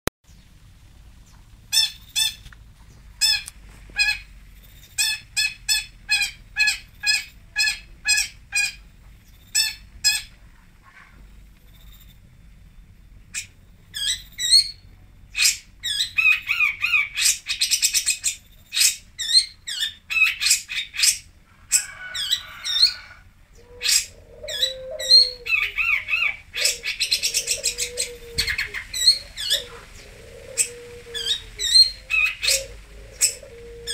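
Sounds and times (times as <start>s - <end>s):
bird singing harsh and trilled notes: 11.7s - 21.3s.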